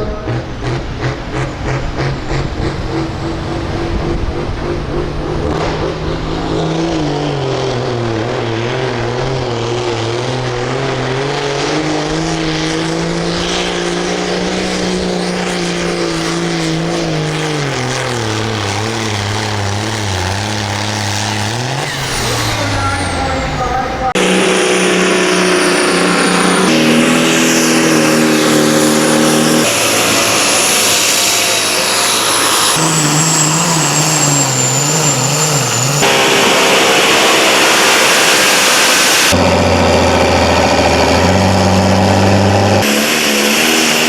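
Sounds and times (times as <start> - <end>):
tractor engine under load: 0.0 - 44.0.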